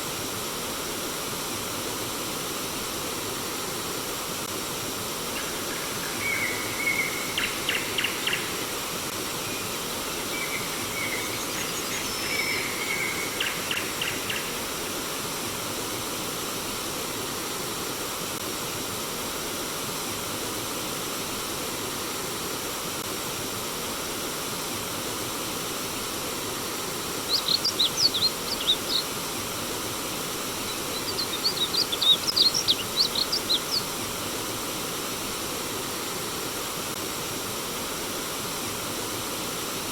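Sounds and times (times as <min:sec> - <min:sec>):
stream water flowing: 0:23.3 - 0:39.9
songbirds chirping: 0:27.1 - 0:34.1.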